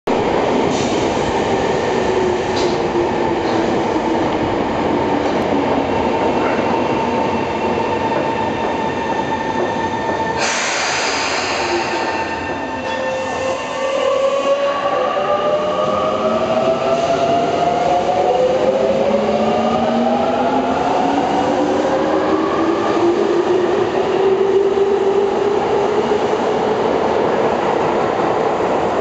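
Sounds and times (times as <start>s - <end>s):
air hiss: 10.4s - 12.2s.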